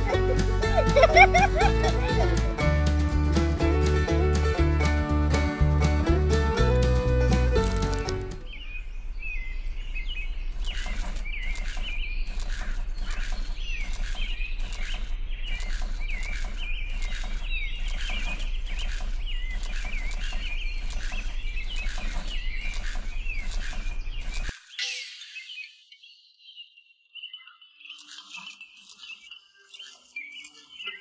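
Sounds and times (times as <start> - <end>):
small birds chirping: 0.0 - 2.6, 7.5 - 31.0
short regular ticks: 7.6 - 8.4, 10.5 - 24.6.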